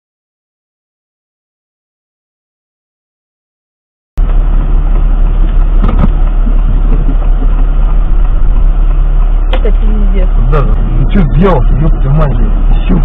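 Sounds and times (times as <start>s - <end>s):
road noise: 4.2s - 13.0s
vehicle engine rumble: 4.2s - 13.0s.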